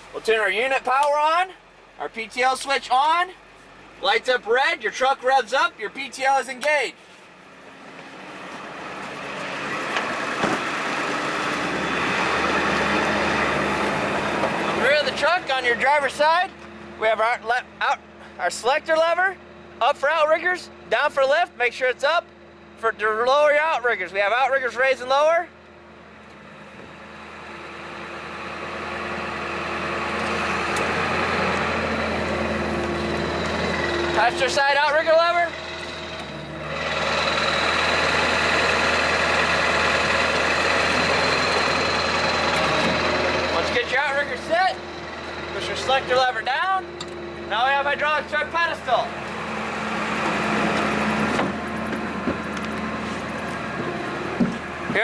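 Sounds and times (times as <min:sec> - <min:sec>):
truck engine running: 0:00.0 - 0:55.0
hydraulic pump: 0:28.2 - 0:55.0.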